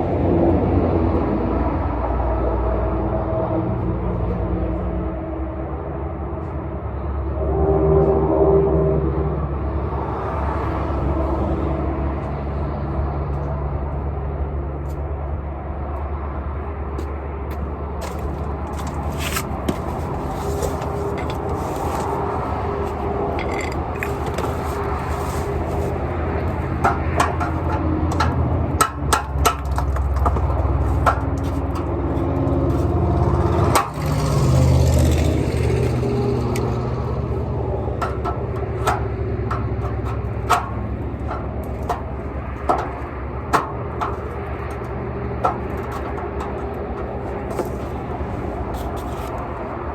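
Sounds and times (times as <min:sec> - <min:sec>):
scraping clicks: 0:18.0 - 0:26.6.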